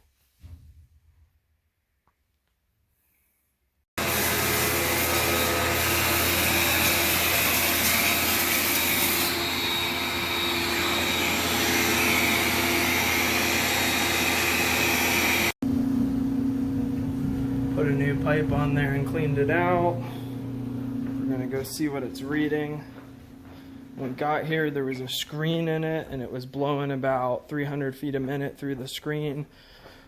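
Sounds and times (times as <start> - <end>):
vacuum motor with rushing air: 4.0 - 22.1.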